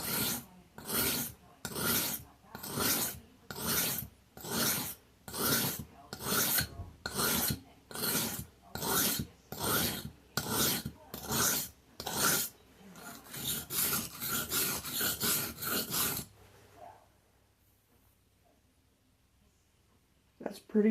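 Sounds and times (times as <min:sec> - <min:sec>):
knife rasping on whetstone: 0:00.0 - 0:16.3.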